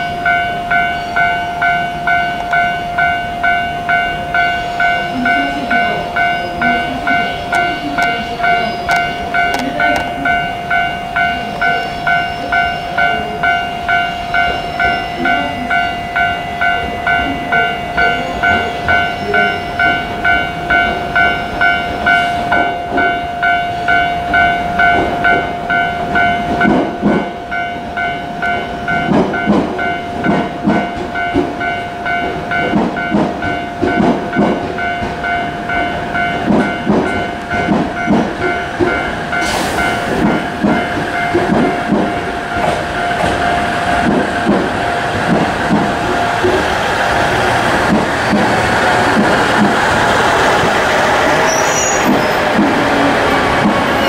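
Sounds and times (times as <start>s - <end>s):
pulsing electronic warning beeps: 0.0s - 44.1s
train wheels knocking over rail joints: 24.8s - 27.3s, 28.9s - 54.0s.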